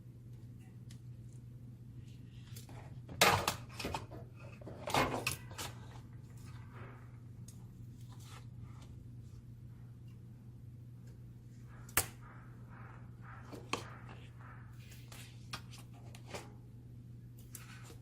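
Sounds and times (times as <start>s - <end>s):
steady low hum: 0.0s - 18.0s
plastic and metal parts clattering: 3.1s - 6.0s.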